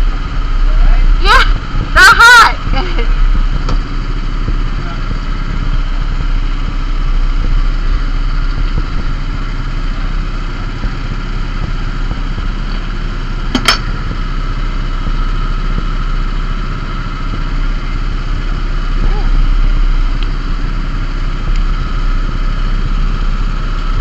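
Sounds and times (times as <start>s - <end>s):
vehicle engine idling: 0.0s - 24.0s
sharp click: 13.5s - 13.9s.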